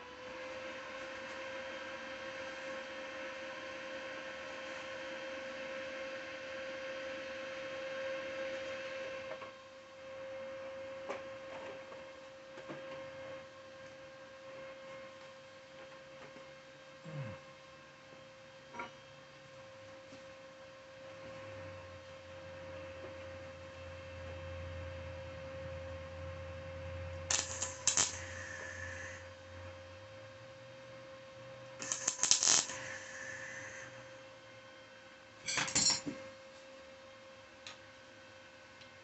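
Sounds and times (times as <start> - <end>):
steady electrical hum: 21.1 - 36.6
small metal parts clinking: 27.3 - 28.2, 31.8 - 32.8, 35.5 - 36.1.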